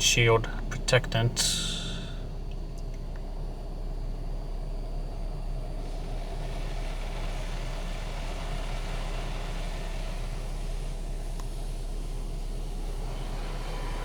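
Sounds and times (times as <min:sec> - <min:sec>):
low hum: 0:00.0 - 0:02.9
car wash spray hiss: 0:01.2 - 0:02.3, 0:05.8 - 0:14.0.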